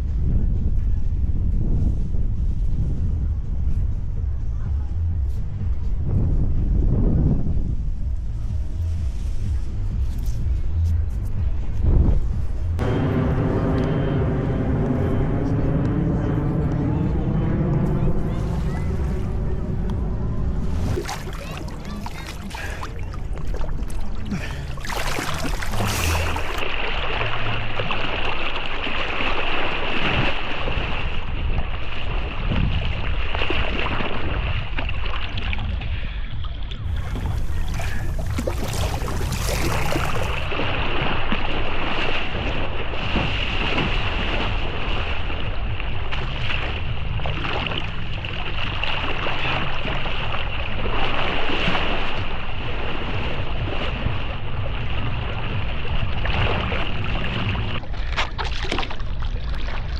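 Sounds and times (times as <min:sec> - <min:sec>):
wind buffeting microphone: 0:00.0 - 0:26.7, 0:30.0 - 0:59.9
water sloshing and splashing: 0:18.0 - 0:59.9.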